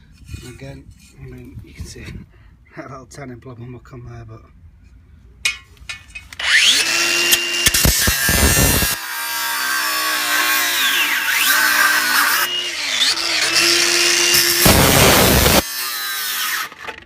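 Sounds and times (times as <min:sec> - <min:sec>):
power tool cutting metal: 0:06.3 - 0:17.0.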